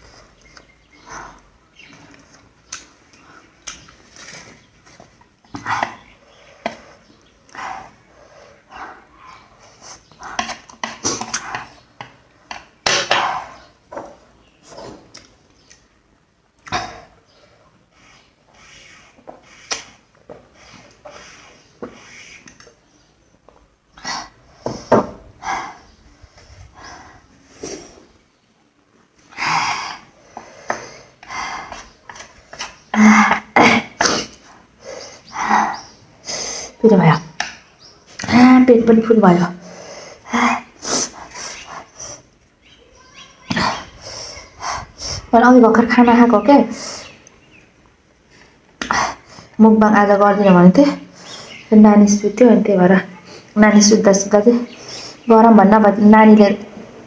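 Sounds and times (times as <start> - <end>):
chewing: 0.0 - 15.9
sharp sniffing breaths: 5.6 - 11.8, 16.7 - 22.6, 24.0 - 28.2, 29.3 - 32.9, 34.0 - 36.8, 39.6 - 42.4, 43.7 - 45.3, 46.7 - 47.4, 51.0 - 51.7, 54.7 - 55.3.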